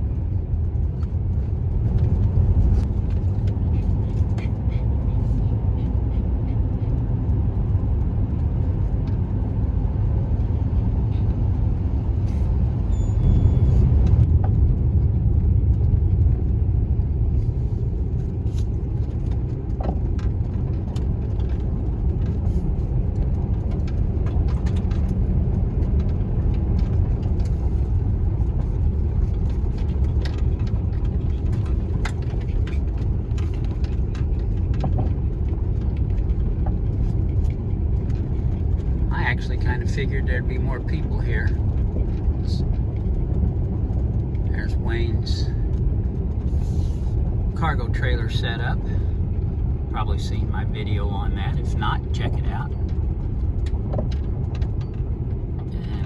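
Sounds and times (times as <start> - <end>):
van engine and road rumble: 0.0 - 56.0
light clicks and rattles: 18.1 - 40.0.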